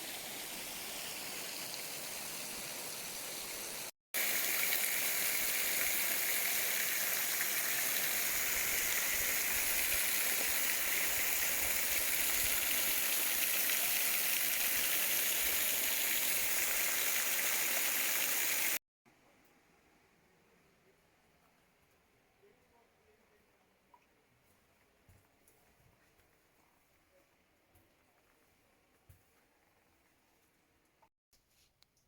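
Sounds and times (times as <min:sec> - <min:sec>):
falling water rushing: 0:00.0 - 0:18.8.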